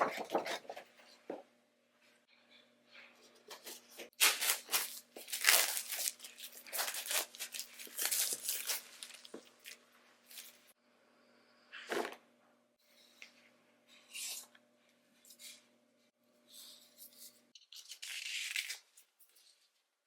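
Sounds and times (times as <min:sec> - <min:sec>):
cardboard packaging tearing: 0:04.2 - 0:10.6.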